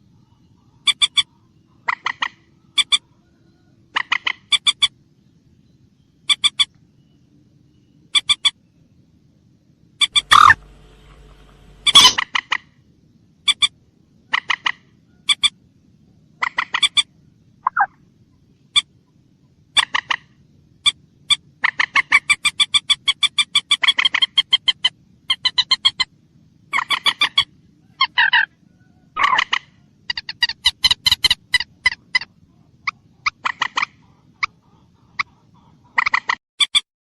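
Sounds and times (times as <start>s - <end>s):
moorhen calling: 0.2s - 5.0s, 8.1s - 8.6s, 10.0s - 12.6s, 19.8s - 26.1s, 26.7s - 36.7s.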